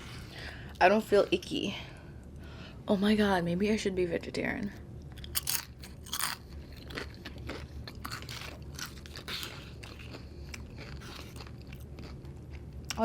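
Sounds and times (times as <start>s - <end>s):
chewing crunchy food: 5.0s - 13.0s.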